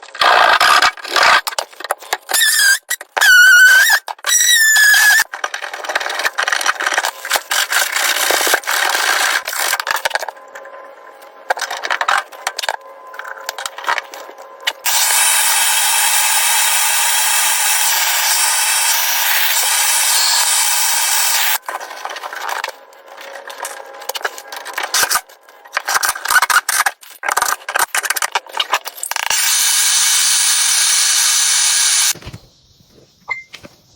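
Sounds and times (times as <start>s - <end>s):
short squeals: 2.3s - 5.3s.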